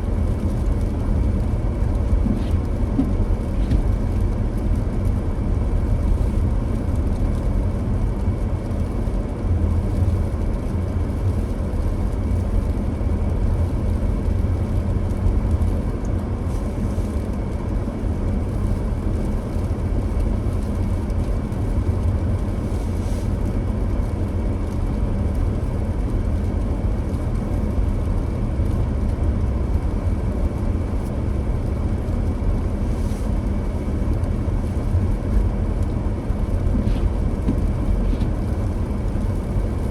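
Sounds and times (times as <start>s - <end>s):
car engine and tyre noise: 0.0s - 39.9s.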